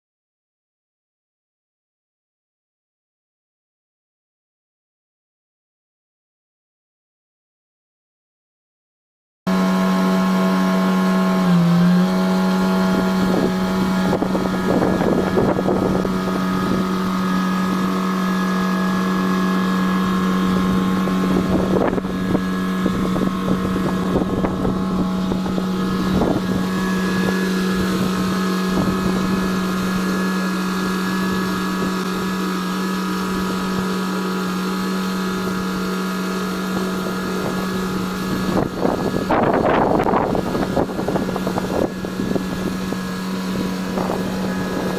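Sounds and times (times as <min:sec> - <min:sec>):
construction vehicle engine running: 0:09.5 - 0:44.9
wind gusts on microphone: 0:12.3 - 0:44.9.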